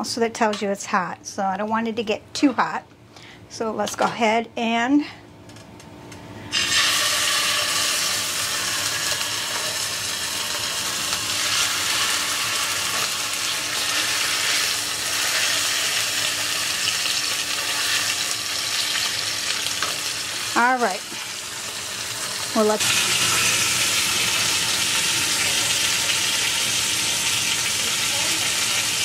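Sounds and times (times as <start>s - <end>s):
chicken sizzling in hot oil: 6.5s - 29.0s.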